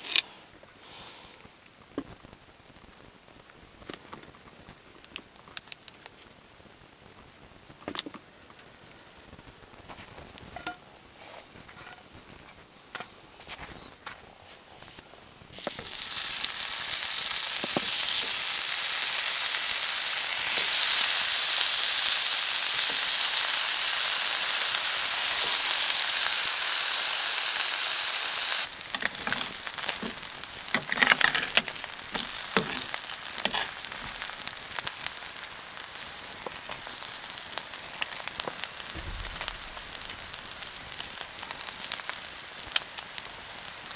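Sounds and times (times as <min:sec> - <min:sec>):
crackles: 0:00.0 - 0:43.9
food sizzling in a pan: 0:14.7 - 0:43.9.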